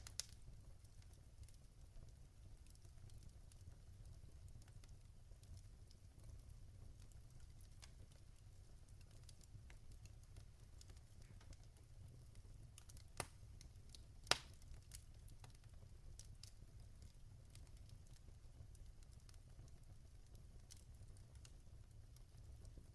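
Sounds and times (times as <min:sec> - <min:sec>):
fire pops: 0:00.0 - 0:01.6, 0:09.0 - 0:21.6
fire crackling: 0:00.0 - 0:22.9.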